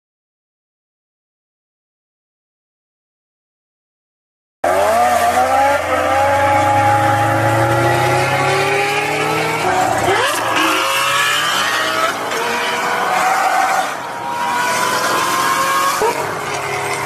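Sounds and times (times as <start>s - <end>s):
car engine revving: 4.6s - 17.0s
road and tire noise: 4.6s - 17.0s.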